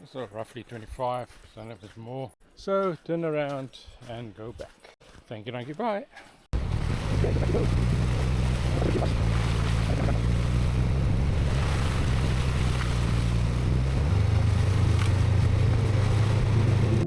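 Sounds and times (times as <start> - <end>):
motorcycle engine running: 6.6 - 17.0
wind noise on microphone: 6.6 - 17.0.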